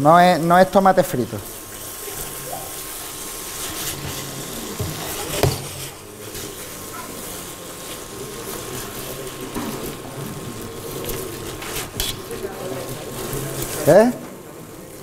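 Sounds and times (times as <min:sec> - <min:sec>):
food sizzling in pot: 0:00.0 - 0:15.0
spatula knocking on pot: 0:04.8 - 0:06.0.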